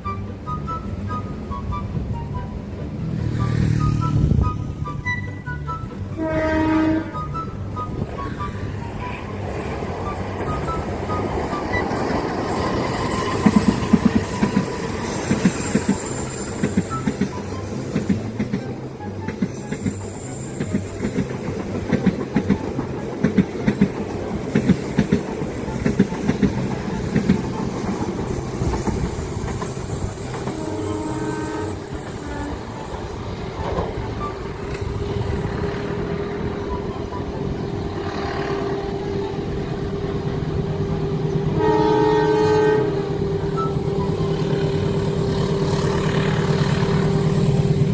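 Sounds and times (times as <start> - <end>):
train horn blast: 1.1 - 22.0, 25.5 - 47.9
train wheels clicking over rail joints: 8.0 - 41.6, 43.1 - 47.9.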